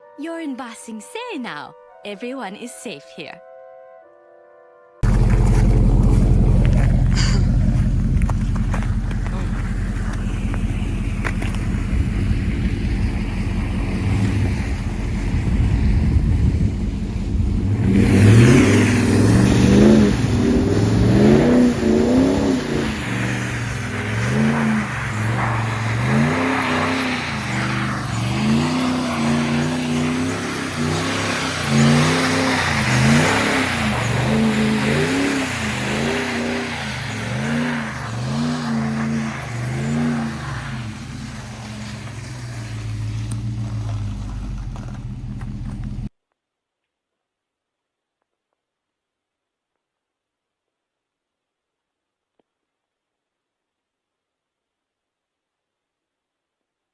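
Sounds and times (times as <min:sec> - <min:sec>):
truck engine revving: 0:05.0 - 0:46.1.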